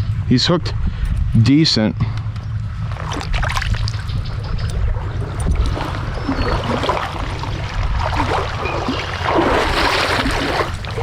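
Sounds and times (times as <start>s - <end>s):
low rumble: 0.0s - 11.0s
stream water rushing and splashing: 5.0s - 11.0s.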